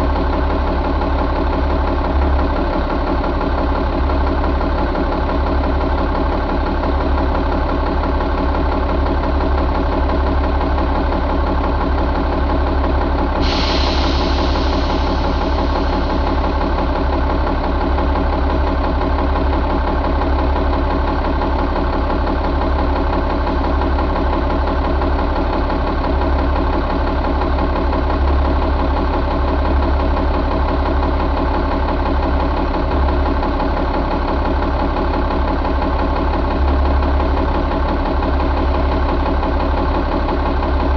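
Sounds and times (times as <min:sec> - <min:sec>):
diesel engine idling: 0:00.0 - 0:40.9
hiss: 0:13.4 - 0:16.8.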